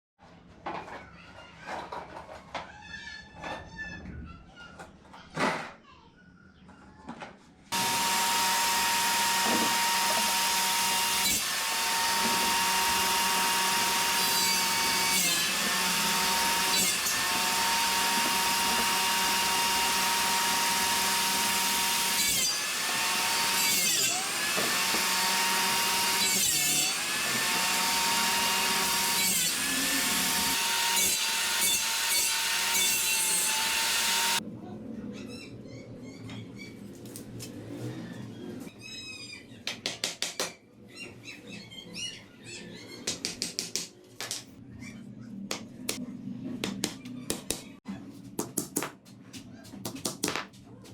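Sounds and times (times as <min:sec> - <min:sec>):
electric saw cutting wood: 0:07.7 - 0:34.4.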